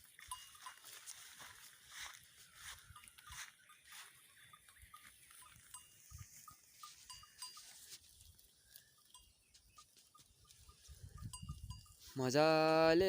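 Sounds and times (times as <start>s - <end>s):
goat bells tinkling: 0.0s - 13.0s
wind rumble on microphone: 10.7s - 12.1s.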